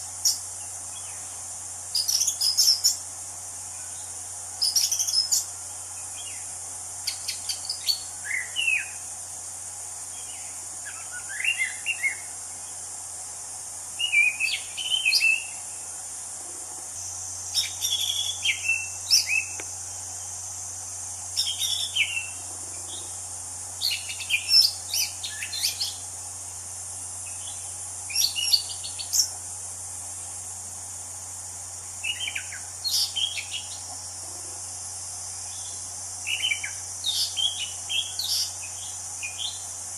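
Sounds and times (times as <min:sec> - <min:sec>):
steady high hiss: 0:00.0 - 0:39.9.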